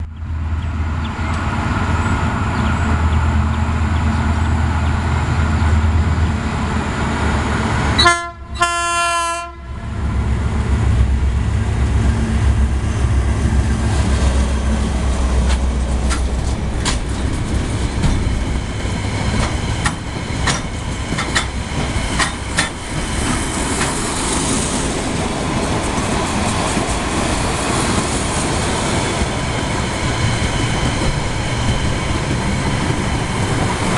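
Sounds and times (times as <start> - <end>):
locomotive engine rumbling: 0.0 - 33.9
train horn blast: 8.0 - 9.9.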